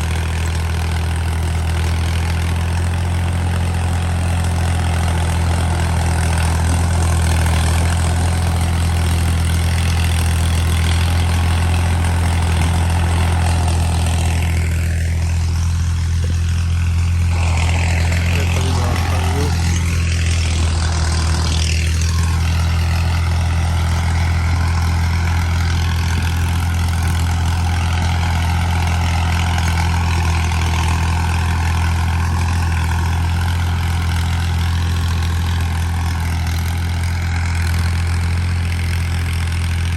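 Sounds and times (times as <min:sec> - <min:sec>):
tractor diesel engine running: 0:00.0 - 0:39.9
high whine: 0:14.2 - 0:27.8.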